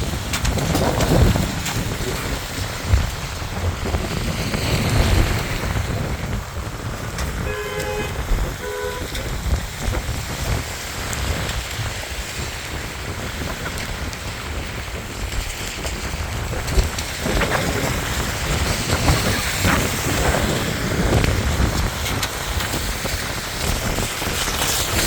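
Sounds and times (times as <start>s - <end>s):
wind buffeting microphone: 0.0s - 25.0s
vehicle horn honking: 7.4s - 9.2s.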